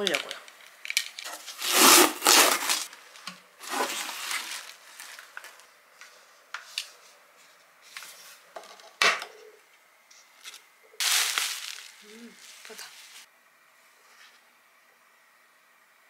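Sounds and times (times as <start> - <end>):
packing tape tearing: 0.9 - 3.0, 3.6 - 5.4, 10.4 - 13.2
cardboard and packing rustling: 1.2 - 5.7, 10.4 - 13.3.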